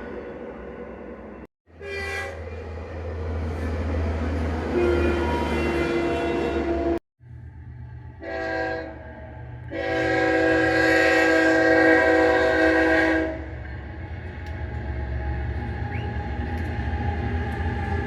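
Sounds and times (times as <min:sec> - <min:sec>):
passing train rumble: 0:00.0 - 0:18.0
locomotive air horn: 0:01.7 - 0:02.7, 0:04.7 - 0:07.0, 0:08.2 - 0:09.0, 0:09.7 - 0:13.5.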